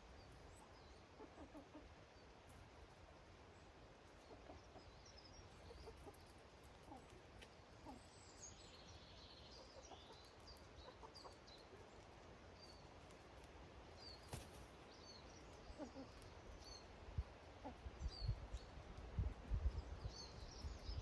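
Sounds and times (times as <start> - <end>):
songbirds chirping: 0.0 - 21.0
hens clucking softly: 0.6 - 2.1, 4.1 - 8.1, 9.6 - 11.9.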